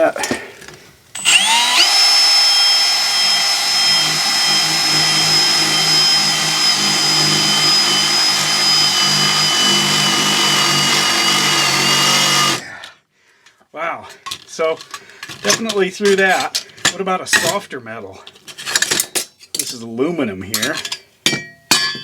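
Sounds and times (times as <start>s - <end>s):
power drill boring through metal: 1.2s - 12.8s.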